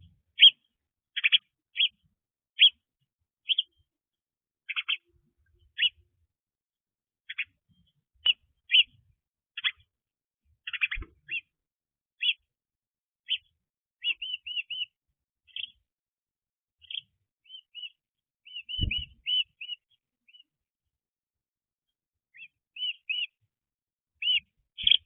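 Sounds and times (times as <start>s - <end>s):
small birds chirping: 0.0s - 4.0s, 4.6s - 6.4s, 7.2s - 11.6s, 12.2s - 12.6s, 13.2s - 16.0s, 16.8s - 20.6s, 22.3s - 25.0s
dull low thumps: 18.8s - 19.2s.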